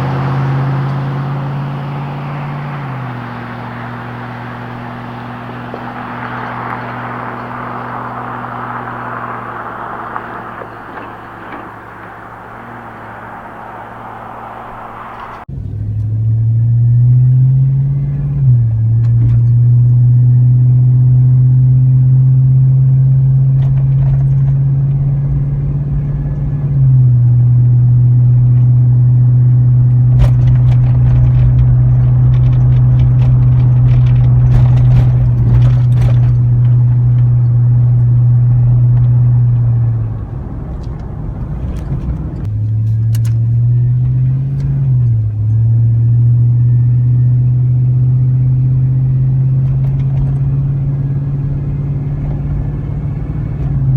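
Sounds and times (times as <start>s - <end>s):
road noise: 0.0s - 53.9s
truck engine droning under load: 0.0s - 53.9s
light clicks and rattles: 30.1s - 38.2s.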